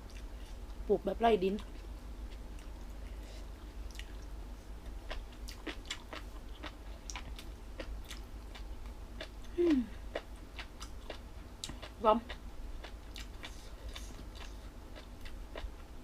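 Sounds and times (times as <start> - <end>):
chewing crisp food: 0.0 - 0.8, 1.6 - 16.0
person humming: 9.5 - 10.0.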